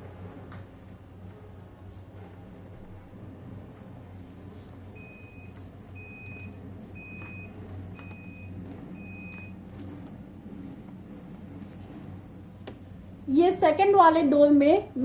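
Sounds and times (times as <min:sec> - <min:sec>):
low steady hum: 0:00.0 - 0:15.0
refrigerator alarm beeping: 0:05.0 - 0:09.6.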